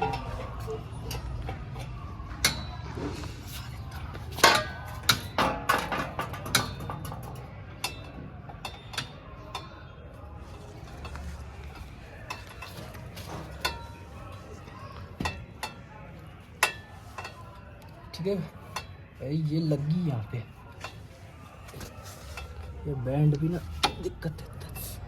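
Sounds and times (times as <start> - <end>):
metal clinks and knocks: 0.0 - 9.8.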